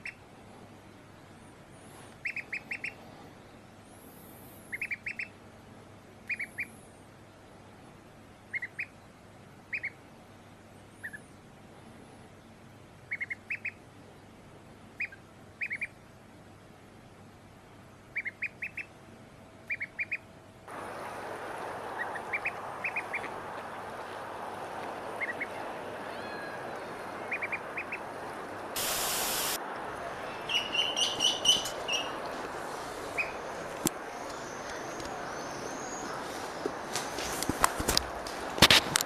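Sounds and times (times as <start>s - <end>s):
ducks quacking: 19.7s - 29.6s, 30.3s - 33.4s
brief loud hiss: 28.8s - 29.6s.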